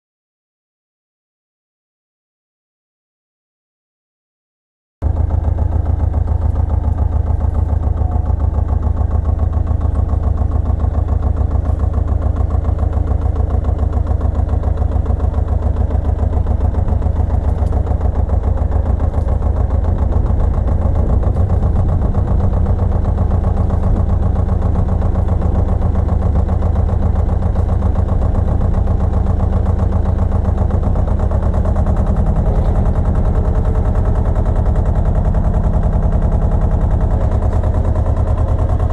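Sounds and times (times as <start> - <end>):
tractor engine chugging: 5.0 - 38.9.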